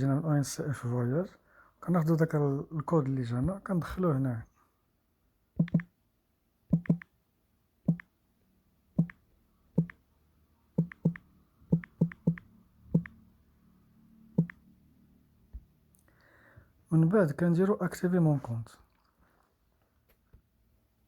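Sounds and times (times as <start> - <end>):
sharp typing taps: 5.6 - 5.9, 6.7 - 7.1, 7.9 - 8.1, 9.0 - 9.2, 9.8 - 10.0, 10.8 - 13.2, 14.4 - 14.6.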